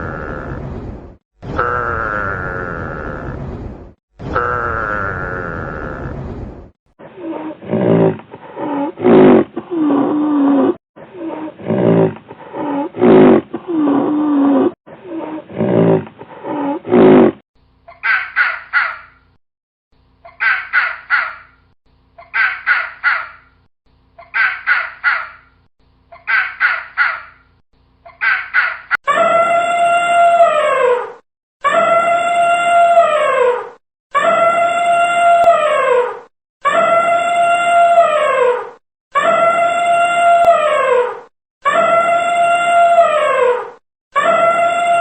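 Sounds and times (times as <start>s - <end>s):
deep repeated animal calls: 0.0s - 0.7s, 1.4s - 3.4s, 4.2s - 6.2s, 26.3s - 27.5s.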